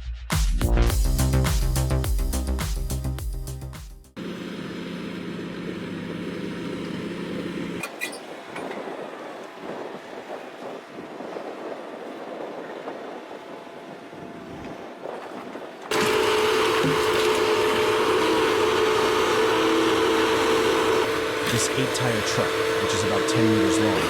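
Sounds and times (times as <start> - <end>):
heavy machinery engine running: 4.2 - 12.1, 15.7 - 24.0.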